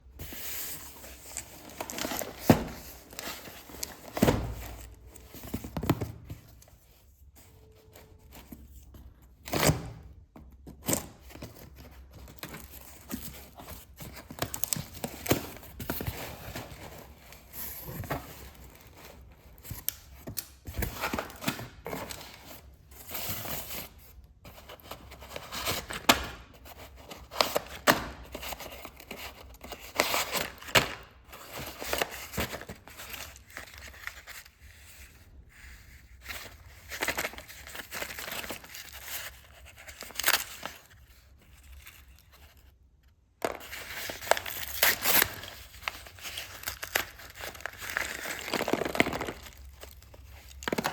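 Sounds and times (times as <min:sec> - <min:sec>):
packaging tearing and crinkling: 0:43.5 - 0:50.9.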